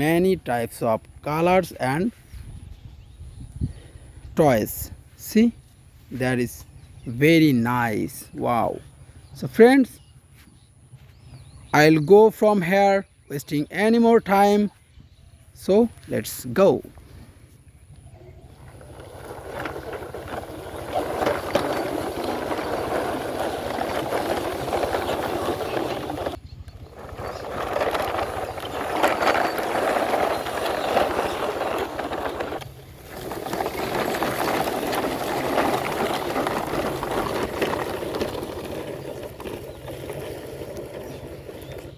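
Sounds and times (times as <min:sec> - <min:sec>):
toy truck wheels grinding rumble: 0:18.3 - 0:41.9.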